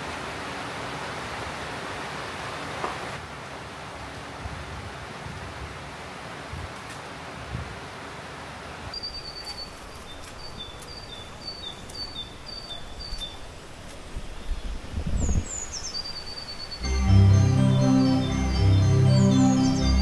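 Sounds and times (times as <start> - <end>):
rushing water: 0.0 - 20.0
birds chirping: 9.0 - 20.0.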